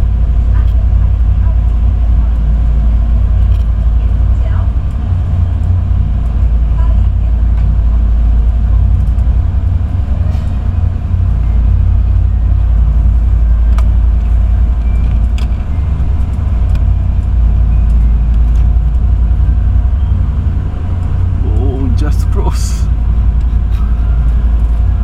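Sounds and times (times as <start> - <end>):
ferry engines droning: 0.0 - 25.0.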